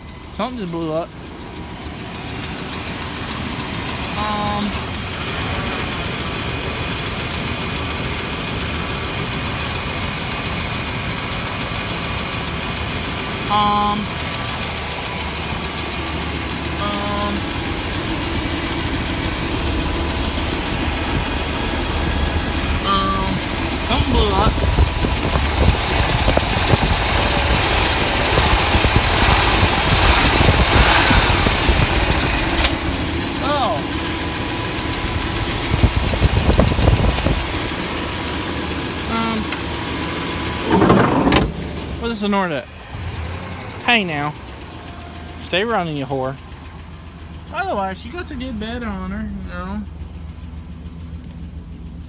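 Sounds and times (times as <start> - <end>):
pickup truck engine idling: 0.0 - 52.0.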